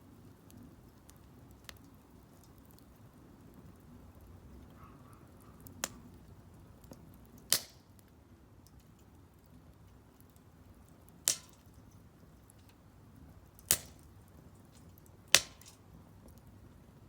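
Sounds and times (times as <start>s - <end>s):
wood popping in fire: 0.0s - 17.0s
faint ticking crackles: 0.1s - 7.5s.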